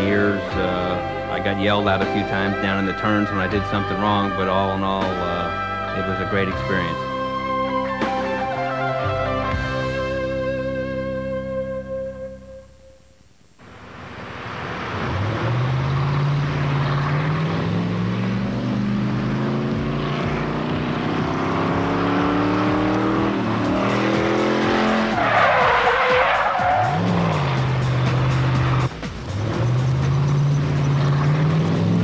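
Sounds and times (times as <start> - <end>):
car engine accelerating: 13.6 - 32.0
tires squealing: 14.1 - 32.0.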